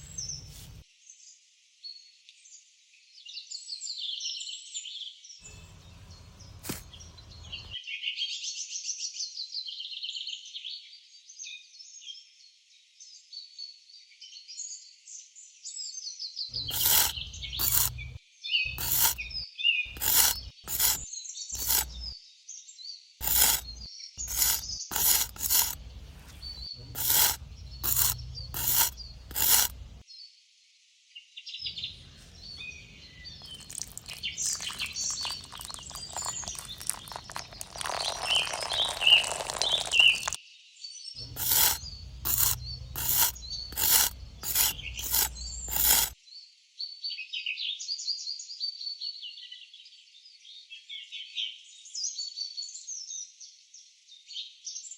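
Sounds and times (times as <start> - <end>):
scraping or rushing noise: 16.7 - 21.0, 21.6 - 22.1, 23.2 - 25.8, 27.0 - 30.0, 41.3 - 46.2
birds chirping: 31.8 - 40.4, 41.2 - 45.7.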